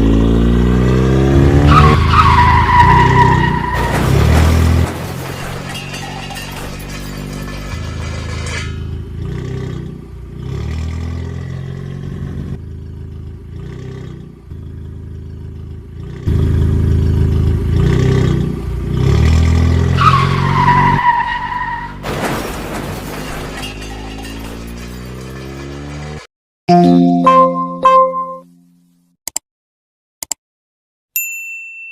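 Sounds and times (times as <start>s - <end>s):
vehicle engine running: 3.9s - 19.5s.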